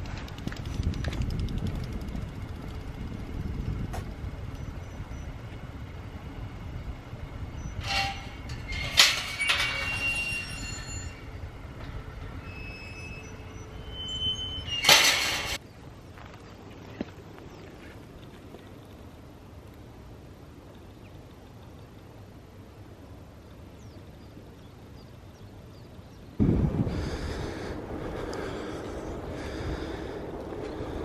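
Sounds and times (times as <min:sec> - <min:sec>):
bicycle tyres and wind rumble: 0:00.0 - 0:31.0
metallic rattles and squeals: 0:07.6 - 0:15.6.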